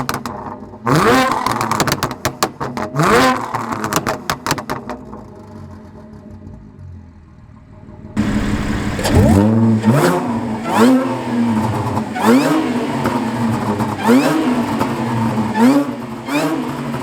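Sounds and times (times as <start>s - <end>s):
car engine revving: 7.1s - 17.0s
exhaust crackling pops: 8.2s - 15.5s.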